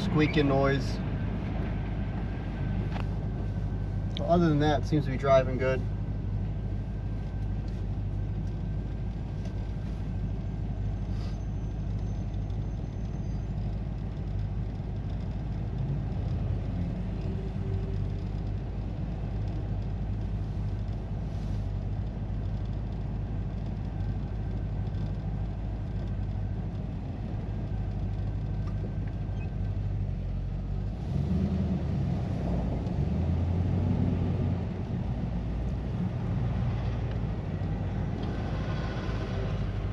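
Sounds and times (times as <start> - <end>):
car engine: 0.0 - 39.9
road noise: 0.0 - 39.9.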